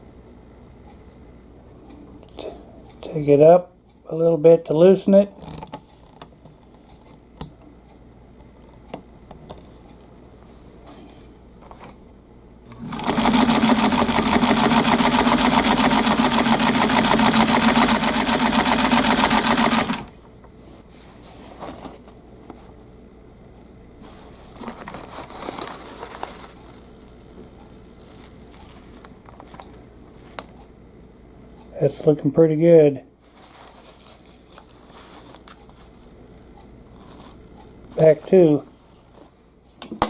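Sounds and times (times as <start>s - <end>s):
faint handling rustles: 9.5s - 12.1s, 20.2s - 23.0s, 24.0s - 30.8s, 33.2s - 39.8s
sewing machine running: 12.7s - 20.2s.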